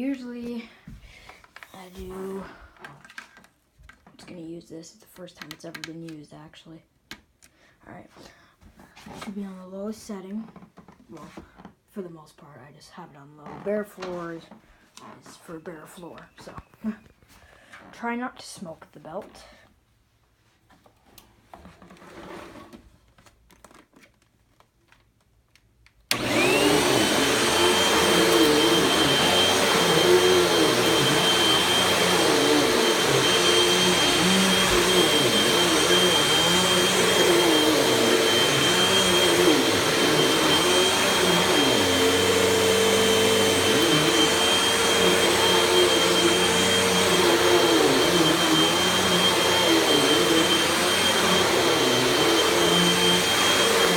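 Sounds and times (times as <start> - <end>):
vacuum cleaner motor whine: 26.1 - 53.9.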